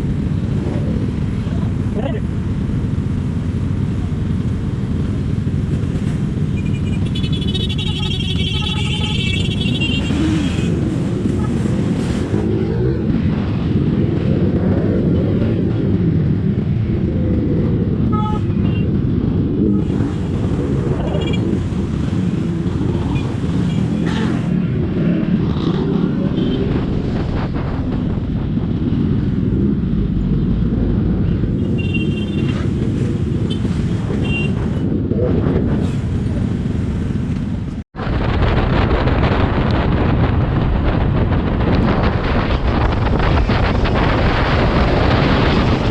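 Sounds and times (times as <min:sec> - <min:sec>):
motorcycle engine: 0:00.0 - 0:28.3
traffic noise: 0:00.0 - 0:45.9
wind buffeting microphone: 0:32.5 - 0:45.9.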